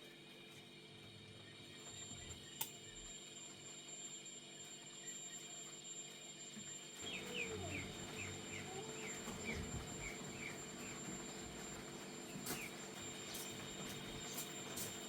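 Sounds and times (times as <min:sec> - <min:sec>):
bird chirping: 0:07.0 - 0:11.0.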